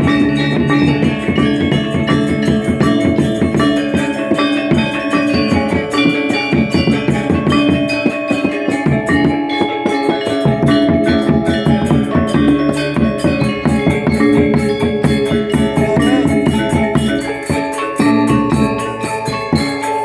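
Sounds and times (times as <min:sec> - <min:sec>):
drums: 0:00.0 - 0:20.0
metallophones and gongs ringing: 0:00.0 - 0:20.0.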